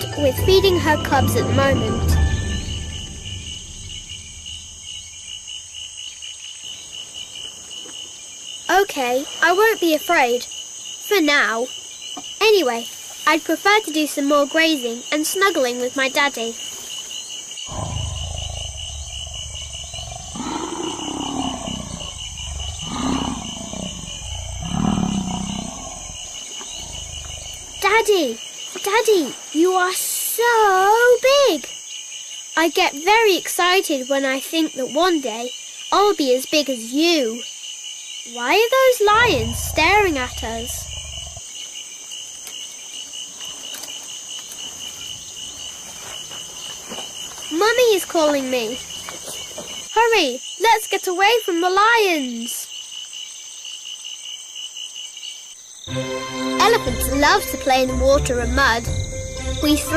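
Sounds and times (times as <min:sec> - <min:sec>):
insects trilling: 0:00.0 - 0:59.9
steady low rumble: 0:00.4 - 0:05.7, 0:39.2 - 0:41.4
lion roaring: 0:17.7 - 0:27.9, 0:39.1 - 0:41.4.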